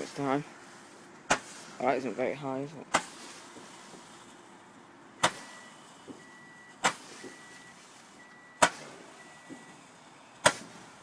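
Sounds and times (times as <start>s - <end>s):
firework bangs: 0.0s - 2.2s, 2.9s - 4.6s, 5.2s - 11.0s
faint firework pops: 5.2s - 9.8s, 10.4s - 10.9s.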